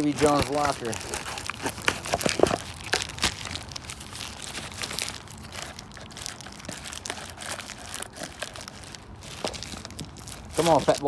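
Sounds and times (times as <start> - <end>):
cardboard and plastic rustling: 0.0 - 11.0.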